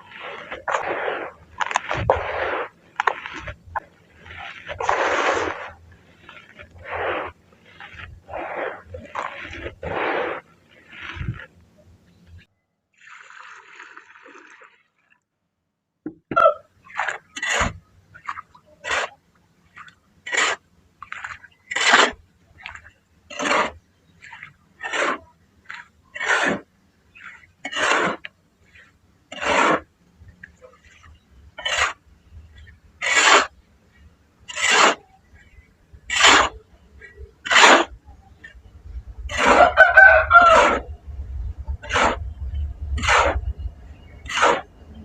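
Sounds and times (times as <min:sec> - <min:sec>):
dry grainy material crunching: 0:00.0 - 0:11.8
faint crackles: 0:00.0 - 0:15.2.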